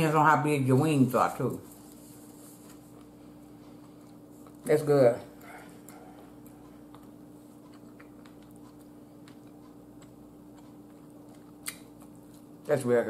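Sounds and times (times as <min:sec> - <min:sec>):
steady low hum: 0:00.0 - 0:13.0
faint chewing: 0:01.6 - 0:12.9.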